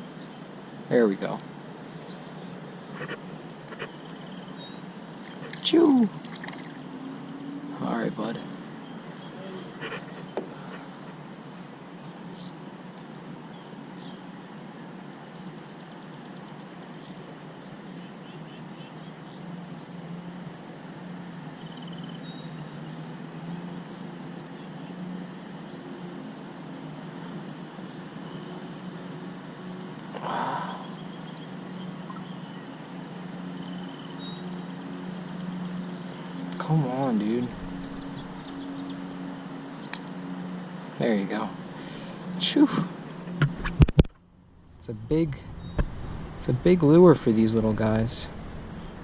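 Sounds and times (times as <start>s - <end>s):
low background rush: 0.0s - 49.0s
high bird chirps: 35.5s - 42.4s.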